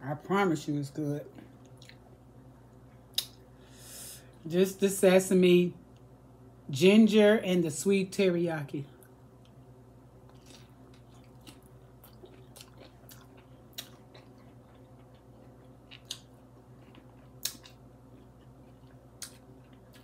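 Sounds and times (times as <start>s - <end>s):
faint low hum: 0.0s - 20.0s
person chewing: 1.5s - 2.2s, 9.4s - 20.0s.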